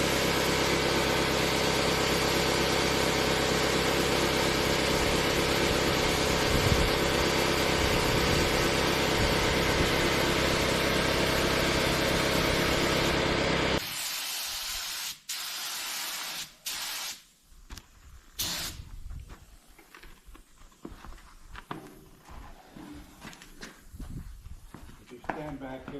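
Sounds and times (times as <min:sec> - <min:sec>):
motor drone: 0:00.0 - 0:13.8
spray gun hissing: 0:09.8 - 0:13.2, 0:13.8 - 0:17.2, 0:18.4 - 0:18.9.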